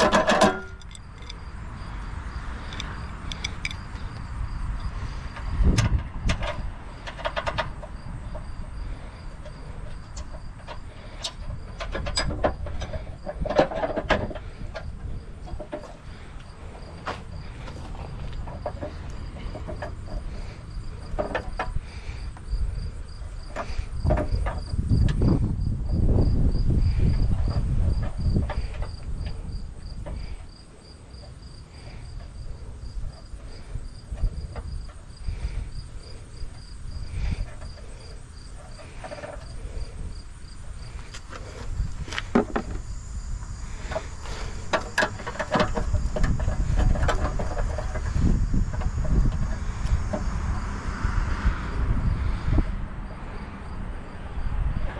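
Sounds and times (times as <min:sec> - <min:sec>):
scattered knocks and clicks: 0:00.0 - 0:01.4, 0:05.3 - 0:22.1, 0:23.4 - 0:25.4, 0:43.8 - 0:50.4.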